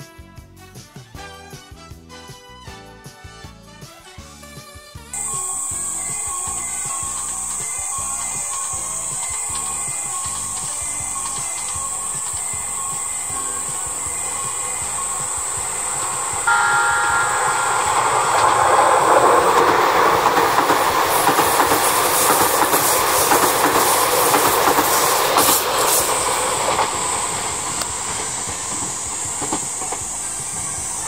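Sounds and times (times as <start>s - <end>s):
clickety-clack over rail joints: 5.2s - 16.4s, 19.2s - 31.0s
steady tones: 5.2s - 22.1s
electric train passing: 5.2s - 31.0s.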